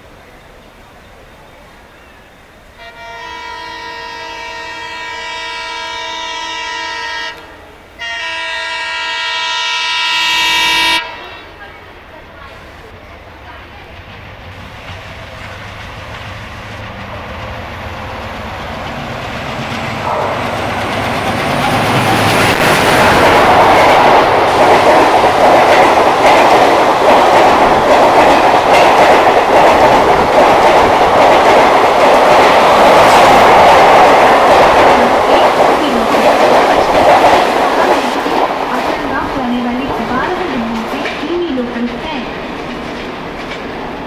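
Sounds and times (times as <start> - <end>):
diesel locomotive passing: 0.0 - 44.0
train wheels clattering over rails: 13.5 - 44.0.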